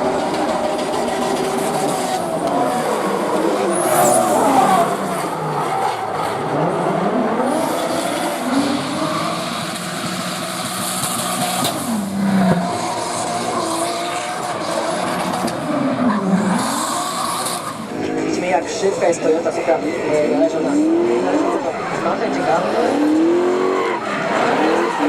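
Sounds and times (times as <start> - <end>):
car engine revving hard: 0.0 - 25.0
tyre squeal: 3.6 - 5.3.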